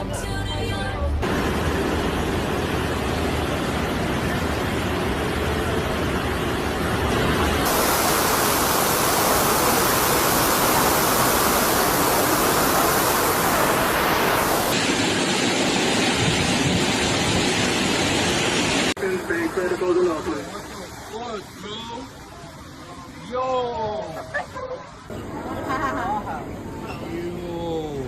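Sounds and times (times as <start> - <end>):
heavy rain pouring: 1.2 - 21.6.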